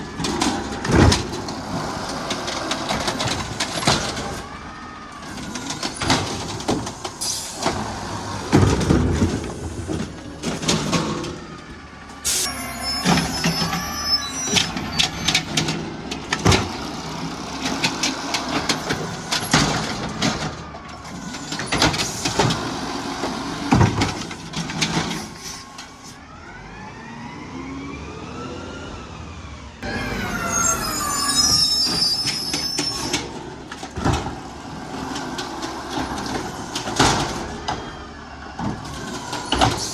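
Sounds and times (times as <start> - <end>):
metal and plastic clanking: 0.0 - 4.5, 5.2 - 12.4, 14.5 - 16.9, 17.6 - 26.0, 32.2 - 37.9, 38.6 - 39.9
garbage truck engine revving: 0.0 - 39.9.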